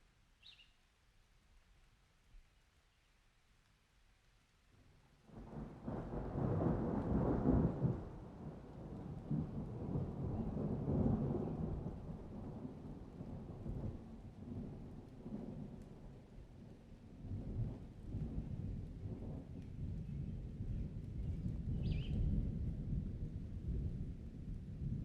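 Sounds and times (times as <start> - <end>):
thunder rumbling: 5.3 - 15.8, 17.3 - 25.0.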